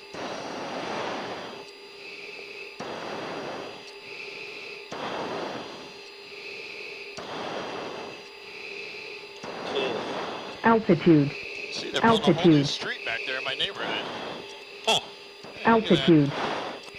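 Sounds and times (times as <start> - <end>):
heavy breathing in oxygen mask: 0.2 - 11.8
faint intercom hum: 8.8 - 16.9.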